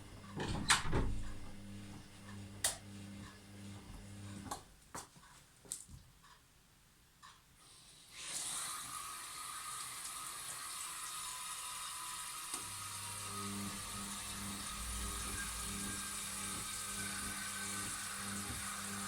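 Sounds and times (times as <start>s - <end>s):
washing machine motor hum: 0.0s - 4.6s, 8.2s - 19.0s
water flowing into washing machine: 8.1s - 19.0s.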